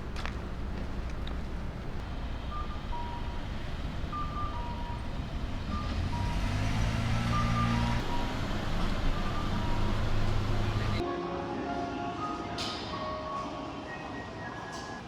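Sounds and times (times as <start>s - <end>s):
train drive hum: 0.0s - 11.0s.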